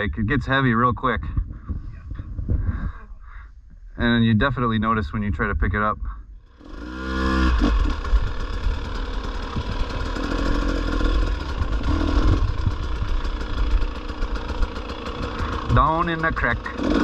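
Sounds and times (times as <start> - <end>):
dirt bike engine starting: 6.4 - 17.0.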